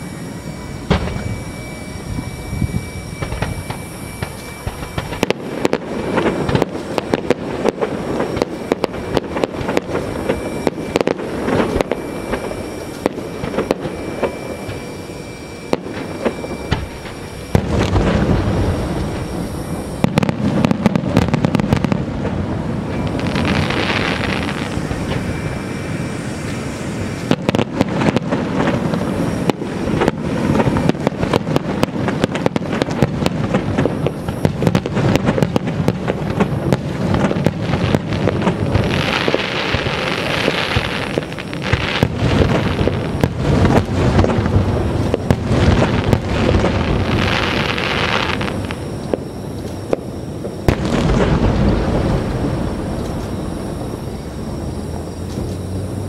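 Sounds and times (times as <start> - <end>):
fireworks crackling hiss: 0.0 - 56.0.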